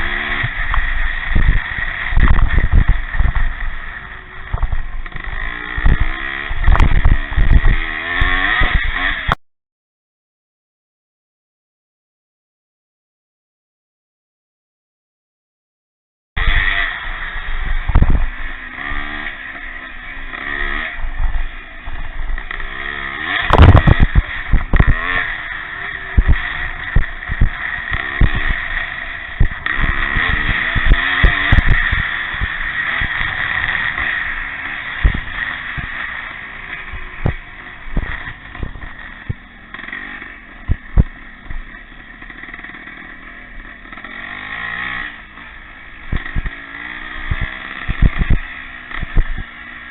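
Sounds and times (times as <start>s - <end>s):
motorcycle engines revving: 0.0s - 9.4s, 16.4s - 49.9s
sharp thumps: 0.0s - 9.4s, 17.5s - 49.9s.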